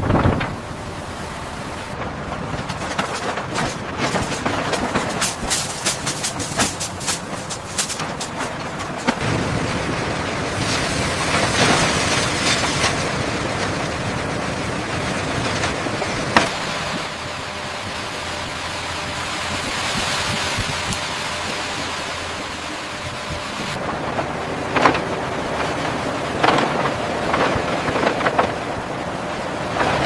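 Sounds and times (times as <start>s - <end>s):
steady rushing noise: 0.0s - 30.0s
clattering clicks and knocks: 2.0s - 9.3s, 24.1s - 28.7s.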